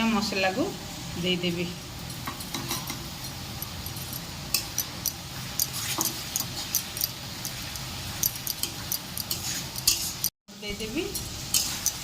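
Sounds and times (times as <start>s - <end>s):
onions sizzling in oil: 0.0s - 12.0s
spatula scraping and tapping pan: 2.1s - 10.3s, 11.2s - 12.0s.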